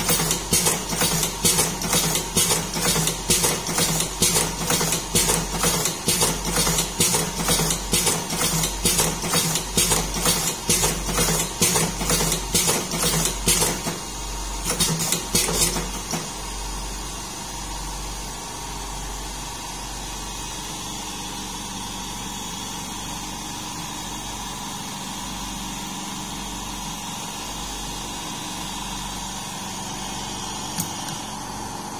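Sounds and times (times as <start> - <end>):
machine mechanical clacks: 0.0 - 16.4.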